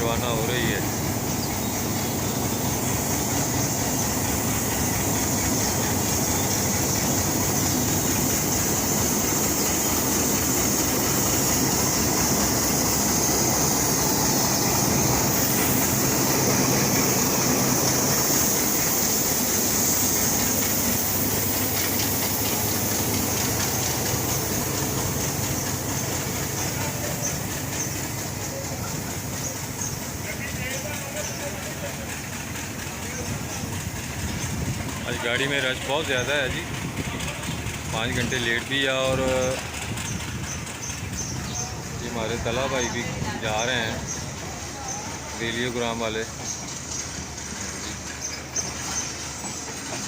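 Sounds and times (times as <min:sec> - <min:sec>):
high-pitched hiss: 0:00.0 - 0:50.0
train rumbling on rails: 0:00.0 - 0:50.0.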